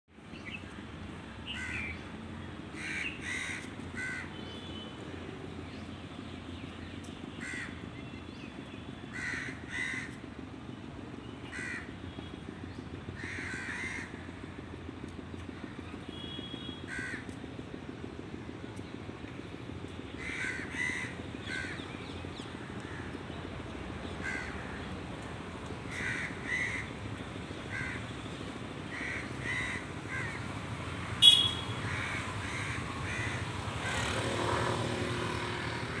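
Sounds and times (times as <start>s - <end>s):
birds calling: 19.8s - 30.5s, 31.2s - 36.0s.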